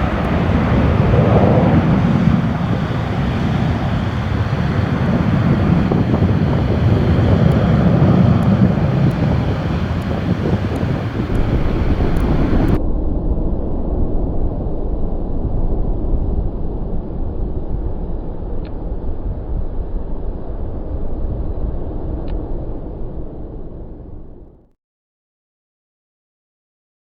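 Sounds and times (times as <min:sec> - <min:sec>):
jet engines rumbling: 0:00.0 - 0:12.8
wind buffeting microphone: 0:00.0 - 0:13.6.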